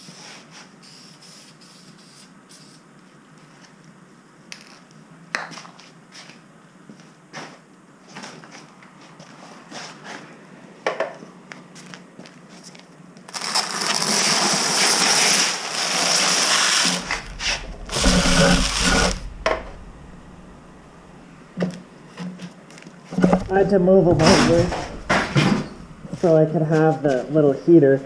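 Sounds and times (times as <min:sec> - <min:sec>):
spray paint hissing: 0:00.8 - 0:02.8
low rumble and clatter: 0:16.9 - 0:22.1, 0:23.2 - 0:27.2
clicks and knocks: 0:17.0 - 0:21.9, 0:23.2 - 0:26.2.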